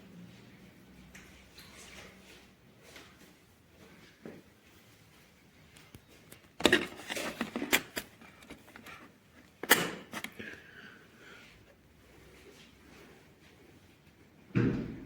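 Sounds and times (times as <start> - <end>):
plastic tool case clattering: 6.6 - 10.4.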